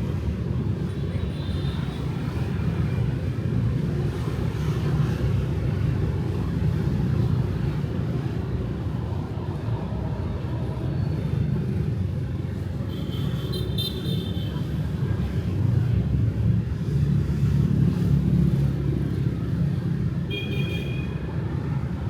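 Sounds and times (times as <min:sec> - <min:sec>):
city street traffic rumble: 0:00.0 - 0:22.0.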